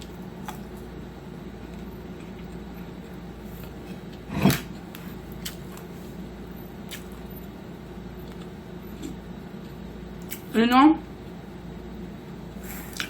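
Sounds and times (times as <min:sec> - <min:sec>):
faint chewing clicks: 0:08.2 - 0:10.5.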